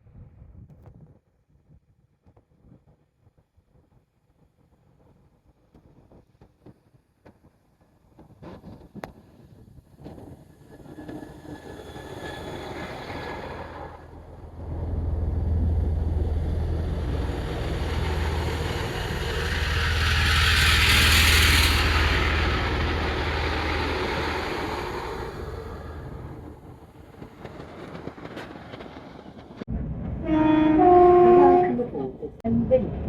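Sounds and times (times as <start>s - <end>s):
train passing close by: 10.0s - 33.0s.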